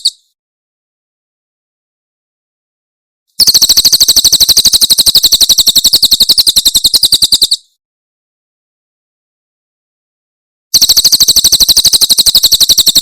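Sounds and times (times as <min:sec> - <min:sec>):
bird chirping rapidly: 0:00.0 - 0:00.3, 0:03.4 - 0:07.8, 0:10.7 - 0:13.0.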